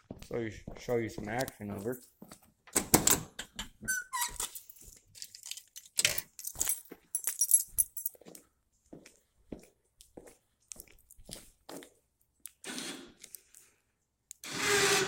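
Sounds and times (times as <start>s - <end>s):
brief squeak: 3.9s - 4.4s
metallic jingling: 5.2s - 8.2s.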